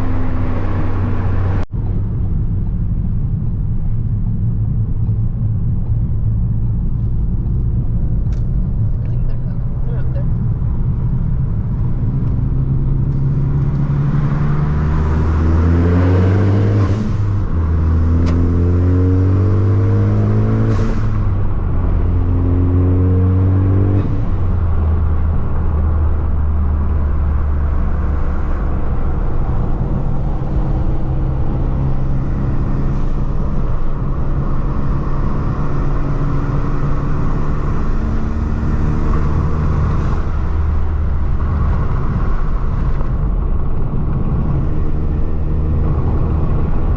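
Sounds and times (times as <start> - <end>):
car engine revving at full throttle: 9.8 - 46.9.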